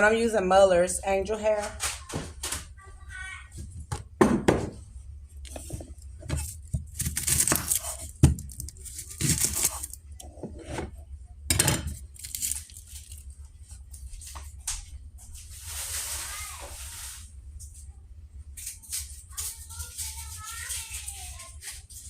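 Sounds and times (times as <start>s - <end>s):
kitchenware clinking: 5.6s - 12.8s
packet crinkling and tearing: 6.4s - 10.1s, 12.1s - 13.3s.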